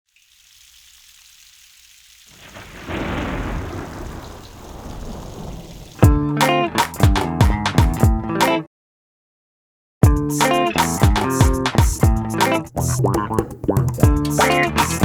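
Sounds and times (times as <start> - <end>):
rain hissing: 0.2 - 6.1
thunder rolling: 2.4 - 6.2
plucked guitar music: 6.0 - 8.7, 10.0 - 15.0.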